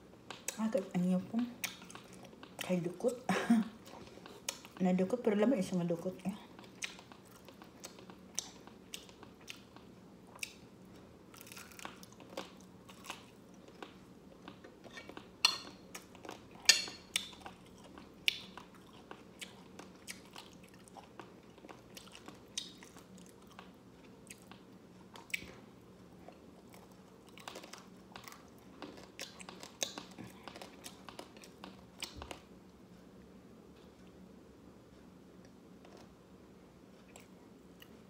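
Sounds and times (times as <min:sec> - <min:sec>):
person chewing crunchy rice crust: 0:01.6 - 0:02.8, 0:03.8 - 0:04.8, 0:06.5 - 0:32.5.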